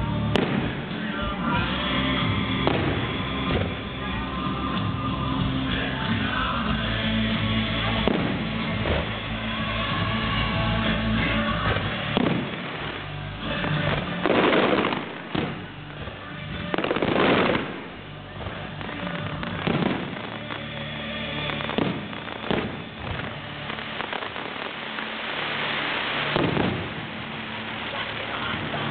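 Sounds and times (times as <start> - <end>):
fireworks booming: 0.0 - 28.9
music: 0.0 - 28.9.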